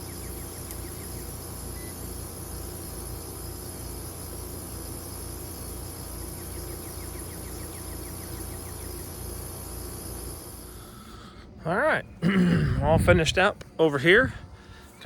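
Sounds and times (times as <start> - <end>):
heat pump humming: 0.0 - 15.0.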